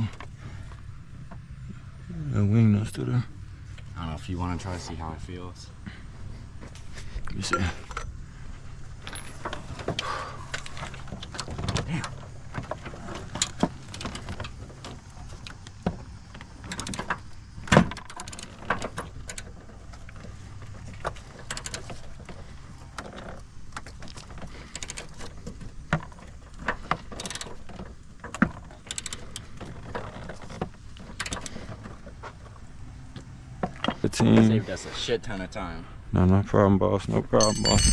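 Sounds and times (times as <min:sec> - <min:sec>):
steady low hum: 0:00.0 - 0:30.1
wrench and socket clinking: 0:37.4 - 0:37.9.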